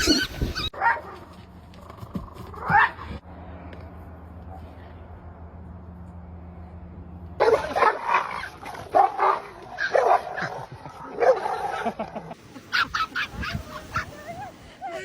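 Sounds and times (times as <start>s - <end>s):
dog barking and yipping: 0.0s - 1.2s, 2.6s - 3.1s, 7.4s - 11.9s, 12.7s - 14.4s.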